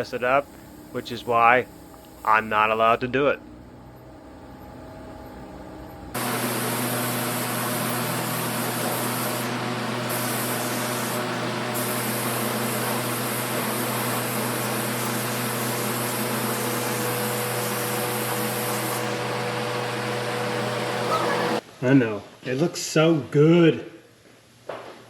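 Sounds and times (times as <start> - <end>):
paint spray gun hissing: 6.2 - 19.4.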